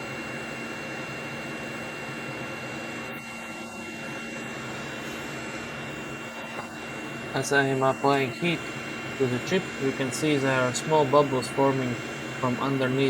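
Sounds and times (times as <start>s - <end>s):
thin high whine: 0.0s - 13.0s
hot air blower rushing: 3.3s - 13.0s.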